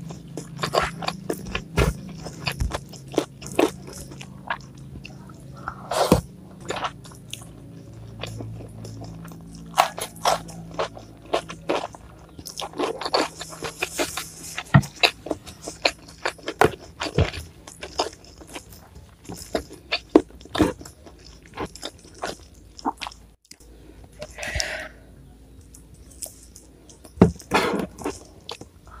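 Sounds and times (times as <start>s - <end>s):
chewing crunchy food: 0.0s - 24.9s, 25.5s - 29.0s.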